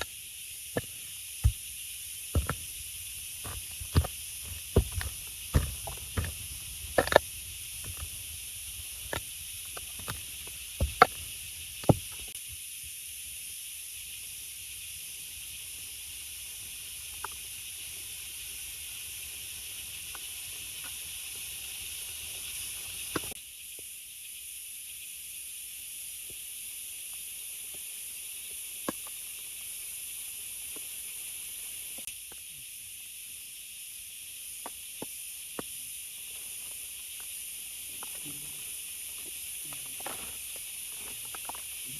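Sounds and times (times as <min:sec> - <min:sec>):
rain hissing: 0:00.0 - 0:12.4
sharp knocks: 0:02.4 - 0:02.7, 0:03.4 - 0:07.2.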